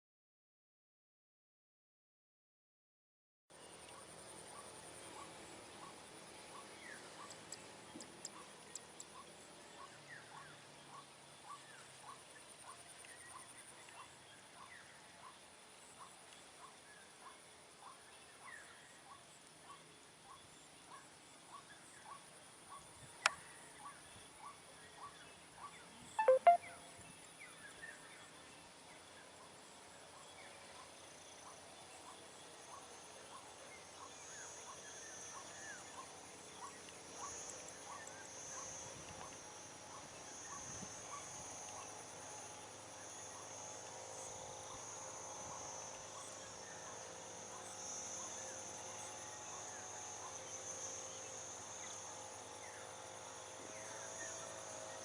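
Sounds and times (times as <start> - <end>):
short insect chirps: 26.2 - 26.8.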